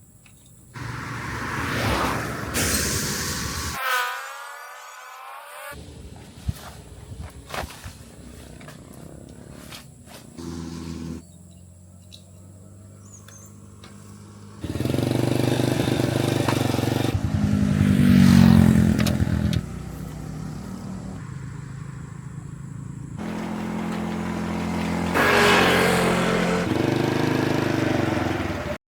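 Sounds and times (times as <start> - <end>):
motorcycle engine running: 8.8 - 11.4, 13.3 - 28.8.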